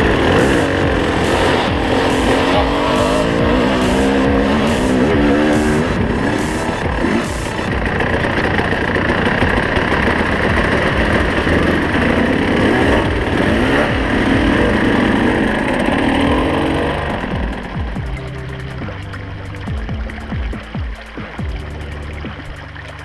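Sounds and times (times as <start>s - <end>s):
dirt bike engine revving: 0.0s - 18.6s.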